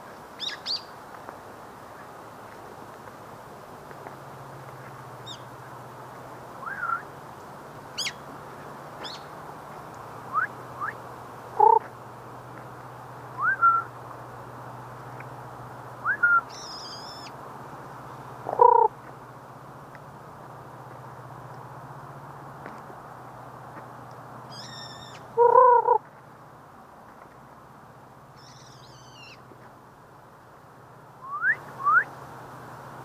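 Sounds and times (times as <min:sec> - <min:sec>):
birds chirping: 0:00.3 - 0:01.0, 0:05.2 - 0:05.5, 0:07.9 - 0:08.2, 0:09.0 - 0:11.0, 0:11.6 - 0:11.9, 0:16.1 - 0:17.4, 0:18.0 - 0:18.9, 0:24.5 - 0:26.0, 0:28.4 - 0:29.5
low loud bird calls: 0:00.4 - 0:01.0, 0:11.6 - 0:11.9, 0:16.1 - 0:17.4, 0:18.4 - 0:18.9, 0:24.5 - 0:26.0, 0:28.4 - 0:29.4
high thin whistles: 0:31.2 - 0:32.1.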